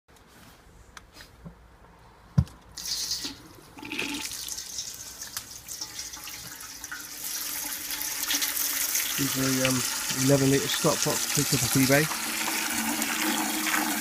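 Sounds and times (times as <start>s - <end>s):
water running into metal pot: 2.8s - 14.0s.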